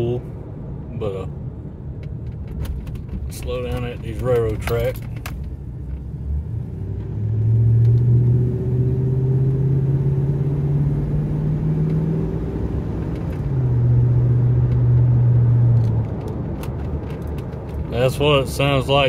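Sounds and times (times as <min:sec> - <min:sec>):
truck engine drone: 0:05.5 - 0:19.0.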